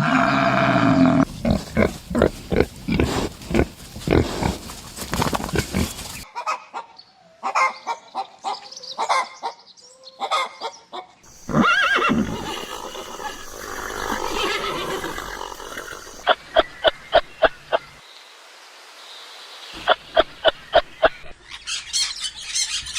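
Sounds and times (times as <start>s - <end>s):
pig grunts: 0.0s - 6.2s, 11.3s - 16.2s
horse whinnying: 11.3s - 16.2s
short animal calls: 11.3s - 16.3s.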